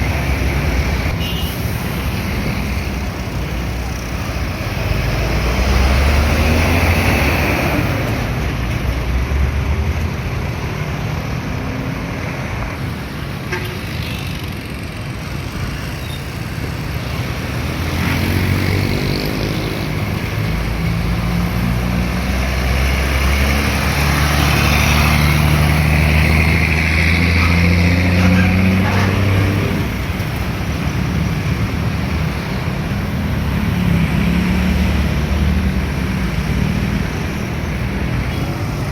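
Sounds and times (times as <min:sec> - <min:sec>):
heavy road traffic: 0:00.0 - 0:38.9.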